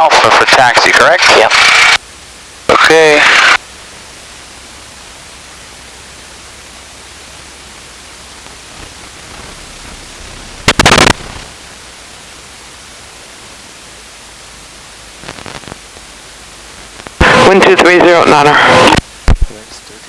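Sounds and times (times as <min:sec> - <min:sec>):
loud radio static burst: 0:00.0 - 0:02.0, 0:02.7 - 0:03.6, 0:08.5 - 0:11.6, 0:15.1 - 0:20.0
radio static hiss: 0:00.0 - 0:20.0
faint crackles: 0:08.4 - 0:11.5, 0:15.2 - 0:17.2.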